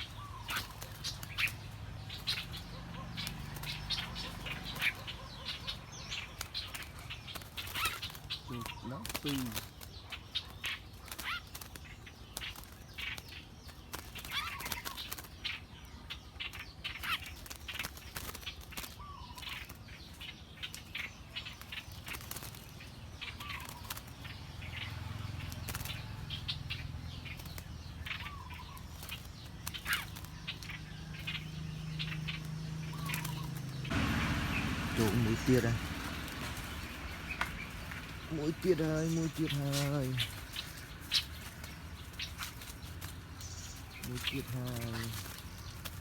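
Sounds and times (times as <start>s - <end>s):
birds calling: 0.0s - 46.0s
sharp clicks and rustles: 32.2s - 46.0s.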